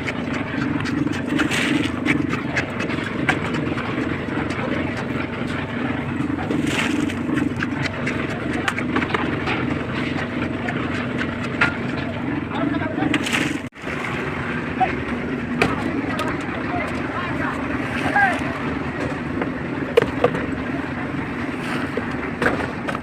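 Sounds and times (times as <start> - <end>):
sharp clicks and scrapes: 0.0 - 12.2
concrete mixer chugging: 0.0 - 23.0.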